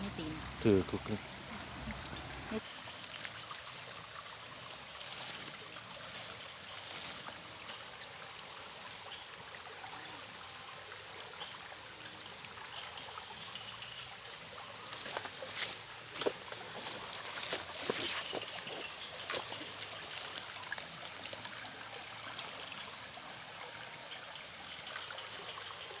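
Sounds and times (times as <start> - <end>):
pulsing insect trill: 0.0 - 26.0
water trickling and splashing: 0.0 - 26.0.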